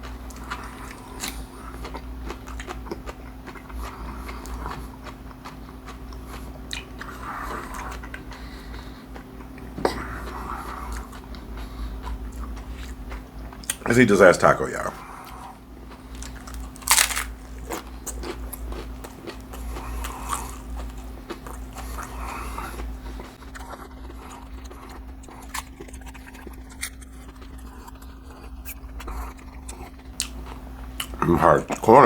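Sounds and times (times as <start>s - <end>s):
chewing with crisp crunches: 0.0s - 32.0s
steady low hum: 0.0s - 32.0s
crunching bite of fried food: 0.3s - 8.4s, 15.3s - 31.2s.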